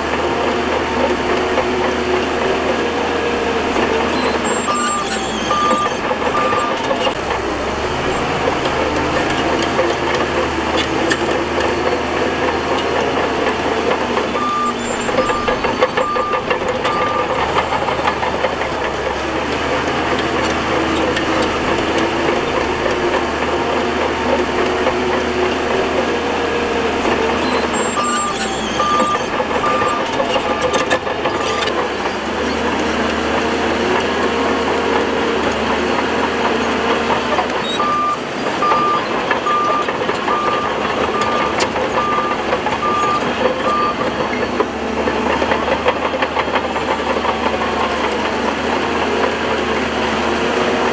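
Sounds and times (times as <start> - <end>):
bulldozer engine working under load: 0.0 - 50.9
reversing alarm beeping: 3.7 - 10.8, 13.4 - 19.6, 27.0 - 31.7, 37.6 - 44.4.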